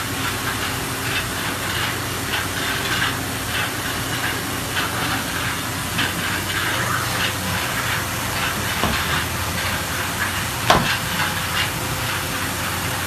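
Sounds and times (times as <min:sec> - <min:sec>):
machining center hiss and hum: 0:00.0 - 0:13.0.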